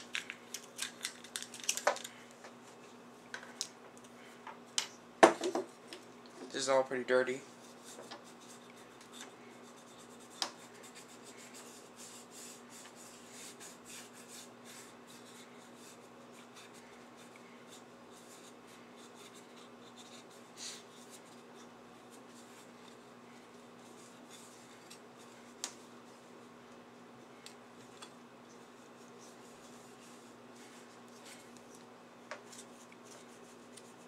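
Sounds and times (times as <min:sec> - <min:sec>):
faint steady hum: 0:00.0 - 0:34.0
rubbing and scratching: 0:07.5 - 0:23.1.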